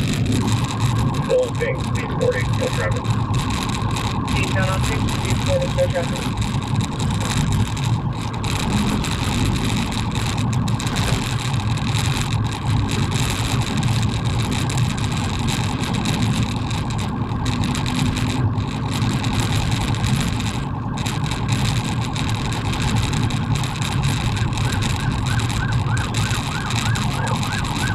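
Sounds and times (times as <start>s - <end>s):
car engine and road noise: 0.0s - 27.9s.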